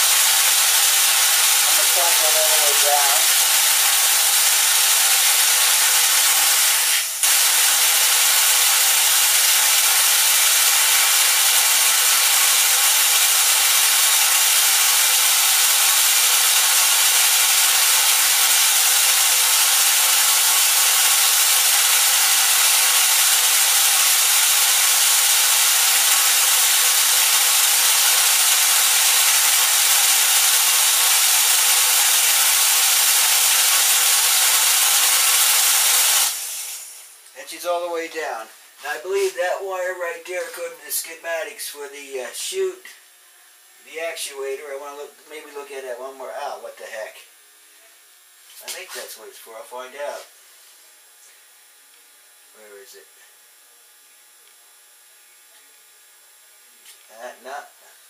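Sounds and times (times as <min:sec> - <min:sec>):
small electric motor running: 0:00.0 - 0:37.2.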